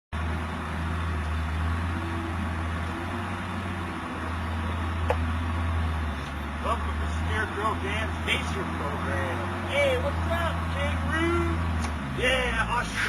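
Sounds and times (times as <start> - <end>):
low rumble with hiss: 0.2 - 13.0.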